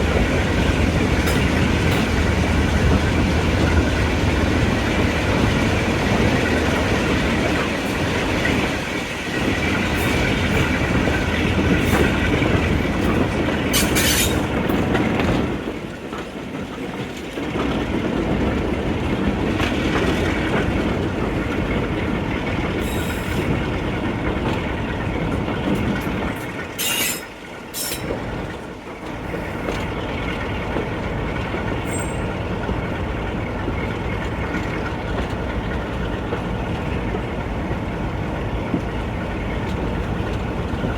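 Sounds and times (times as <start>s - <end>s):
train wheels rumbling on rails: 0.0s - 40.9s
wheel squeals: 13.7s - 14.4s, 26.8s - 28.2s.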